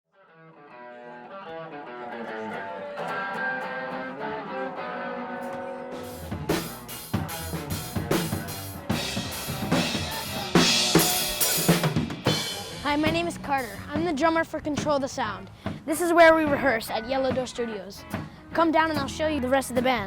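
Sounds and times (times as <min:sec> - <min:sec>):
electric guitar sustained notes: 0:00.3 - 0:12.8
rock band playing: 0:00.6 - 0:20.0
drum kit beat: 0:05.4 - 0:20.0.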